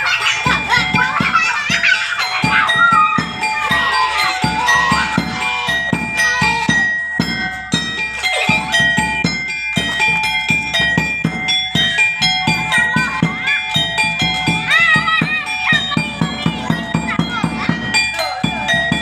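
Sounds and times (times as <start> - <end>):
drum strokes: 0.0 - 19.0.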